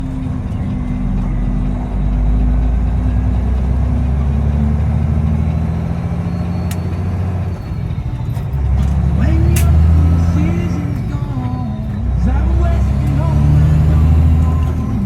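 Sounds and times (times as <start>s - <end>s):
diesel truck engine running: 0.0s - 15.0s
turbo whistle: 5.8s - 8.1s
sharp click: 8.8s - 9.9s.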